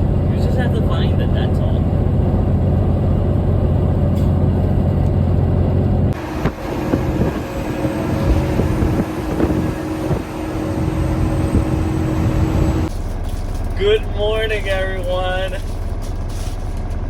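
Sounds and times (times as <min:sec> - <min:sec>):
road noise: 0:00.0 - 0:17.0
truck engine drone: 0:00.0 - 0:17.0.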